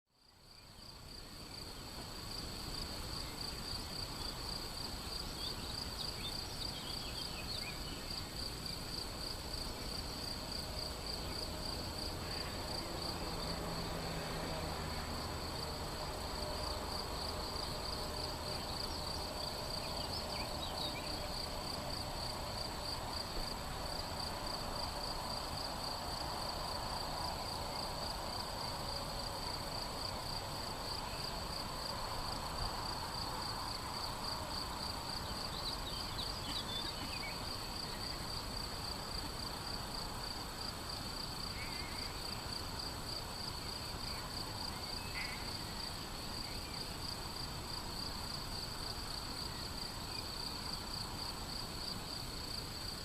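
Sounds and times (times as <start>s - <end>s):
crickets trilling: 0.2s - 53.0s
faint bird chirps: 44.1s - 46.8s.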